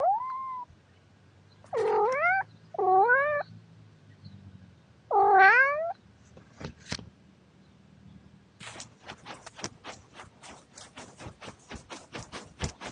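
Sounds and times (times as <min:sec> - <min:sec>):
cat meowing: 0:01.7 - 0:03.5, 0:05.1 - 0:06.0.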